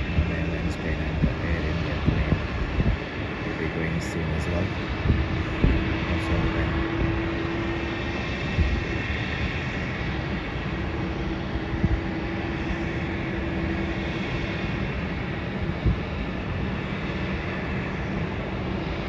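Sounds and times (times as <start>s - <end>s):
jet engines droning: 0.0s - 19.0s.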